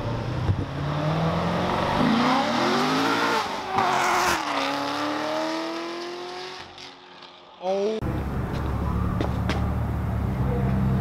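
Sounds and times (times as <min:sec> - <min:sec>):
car engine revving and accelerating: 0:00.0 - 0:07.0.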